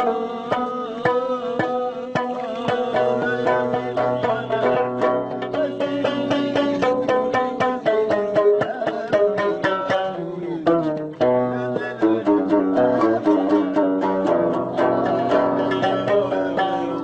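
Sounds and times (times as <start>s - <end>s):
plucked lute notes: 0.0s - 17.0s.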